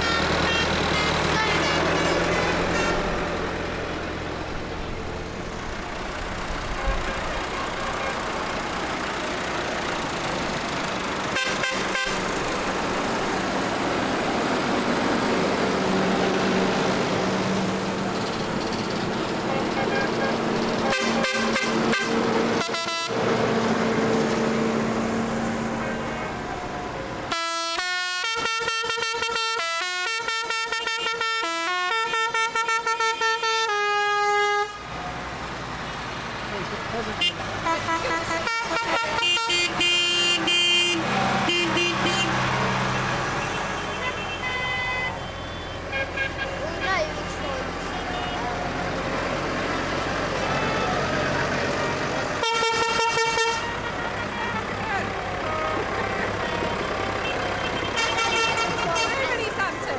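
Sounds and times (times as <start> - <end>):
steady horn tones: 0.0 - 3.6, 11.2 - 13.0, 19.3 - 35.0, 37.0 - 48.9, 50.0 - 59.9
tractor engines running: 0.0 - 59.9
musical horn notes: 51.8 - 59.2.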